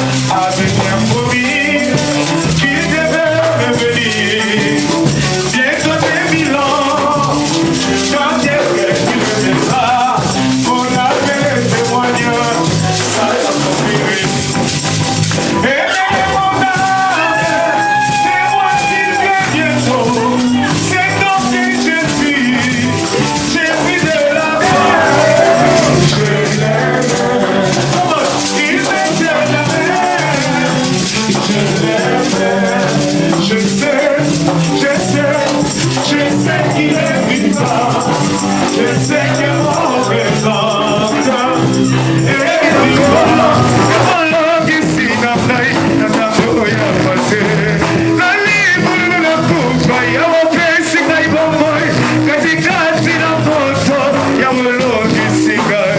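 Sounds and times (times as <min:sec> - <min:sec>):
voices singing: 0:00.0 - 0:14.4, 0:22.4 - 0:45.0
rattling shaker: 0:00.0 - 0:15.7, 0:16.5 - 0:44.3
band playing: 0:24.4 - 0:27.8, 0:40.2 - 0:44.6.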